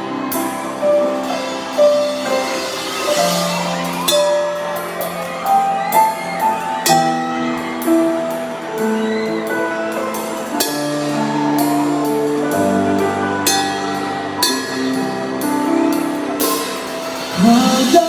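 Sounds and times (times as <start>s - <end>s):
live band playing: 0.0s - 18.0s
cymbal crashes: 0.4s - 6.1s, 16.4s - 18.0s.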